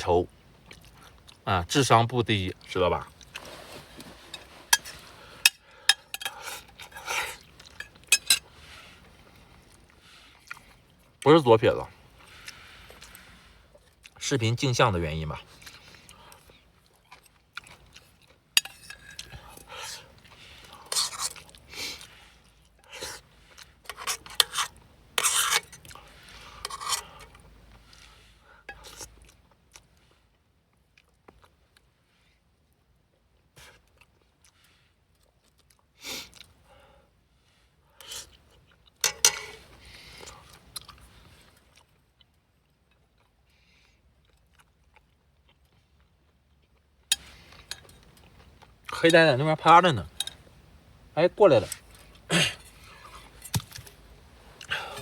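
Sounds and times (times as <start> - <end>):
utensils scraping and clinking in a dish: 3.4 - 8.6, 18.6 - 20.0, 20.6 - 22.1, 23.9 - 27.4, 39.0 - 39.8, 47.1 - 48.0
utensils clicking against a dish: 5.5 - 6.4.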